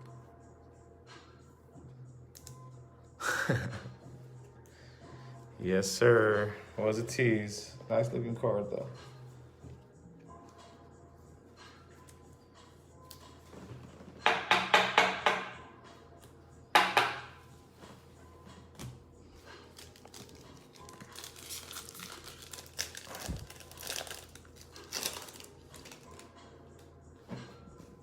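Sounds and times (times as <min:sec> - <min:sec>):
plastic wrapper crinkling: 0:19.7 - 0:26.3
plastic wrapper tearing: 0:19.7 - 0:26.3.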